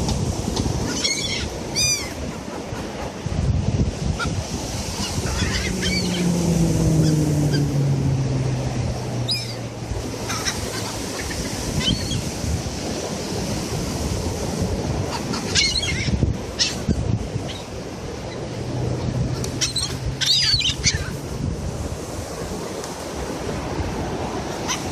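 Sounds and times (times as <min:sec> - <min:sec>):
surf: 0:00.0 - 0:24.9
wind: 0:00.0 - 0:24.9
gulls crying: 0:04.2 - 0:12.3
low hum falling in pitch: 0:05.1 - 0:10.2.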